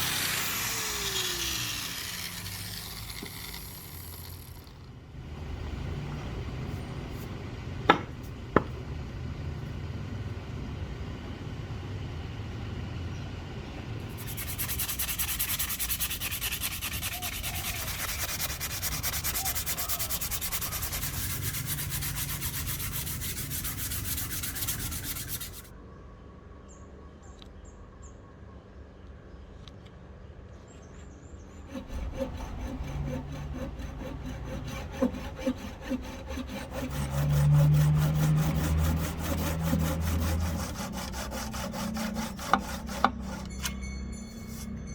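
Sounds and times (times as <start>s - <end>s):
sanding wood: 0.0s - 4.8s, 14.1s - 25.7s, 31.7s - 43.7s
rhythmic strokes on wood: 0.0s - 4.9s, 14.1s - 25.7s, 31.6s - 44.7s
sharp knocks on wood: 7.9s - 8.8s.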